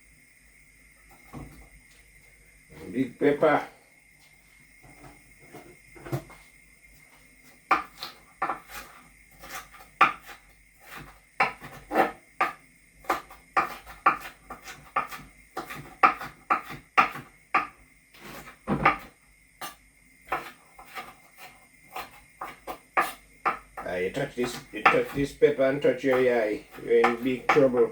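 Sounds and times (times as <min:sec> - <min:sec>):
knife chopping on wooden board: 0:07.7 - 0:25.3, 0:26.0 - 0:27.9.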